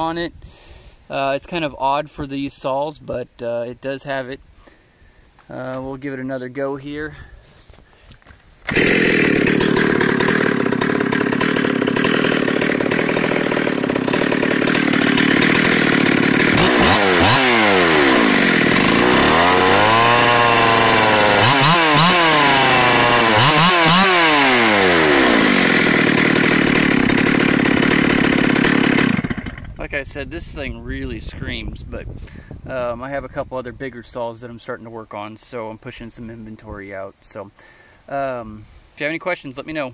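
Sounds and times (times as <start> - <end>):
chainsaw screaming at high revs: 8.7 - 29.8.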